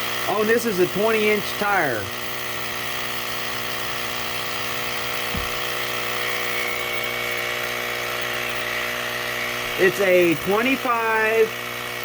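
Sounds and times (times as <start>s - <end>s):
tire inflator compressor running: 0.0s - 12.0s
low thump: 5.3s - 5.7s.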